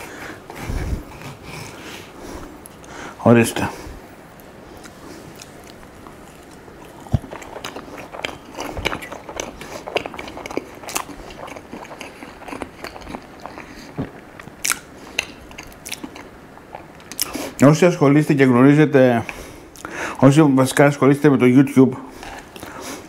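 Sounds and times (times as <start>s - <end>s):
biting and chewing food: 4.8s - 17.5s.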